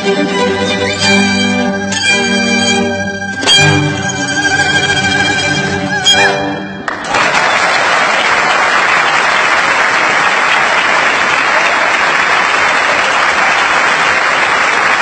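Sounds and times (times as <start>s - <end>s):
crowd applauding: 6.8s - 15.0s.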